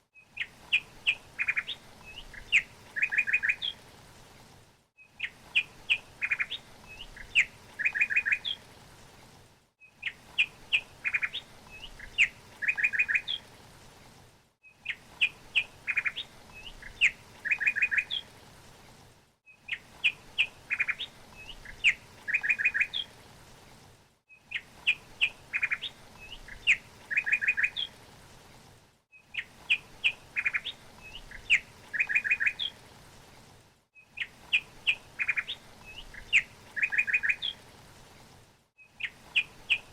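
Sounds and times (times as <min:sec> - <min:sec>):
faint steady hiss: 0:00.0 - 0:39.9
songbird chirping: 0:00.2 - 0:03.8, 0:05.0 - 0:08.7, 0:09.8 - 0:13.5, 0:14.6 - 0:18.4, 0:19.5 - 0:23.2, 0:24.3 - 0:28.0, 0:29.1 - 0:32.8, 0:34.0 - 0:37.6, 0:38.8 - 0:39.9.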